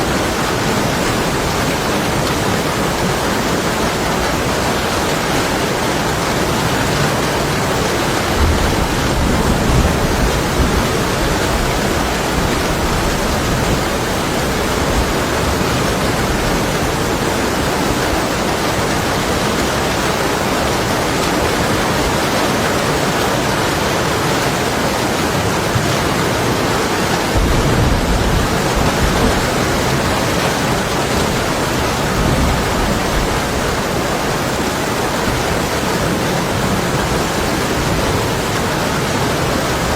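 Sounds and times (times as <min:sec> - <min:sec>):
heavy rain on window glass: 0:00.0 - 0:39.9
distant thunder rumbling: 0:07.3 - 0:18.2, 0:26.2 - 0:35.7.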